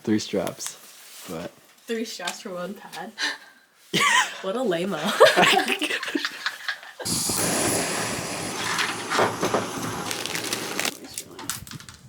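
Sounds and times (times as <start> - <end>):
gas hissing from camp stove: 7.0 - 11.8.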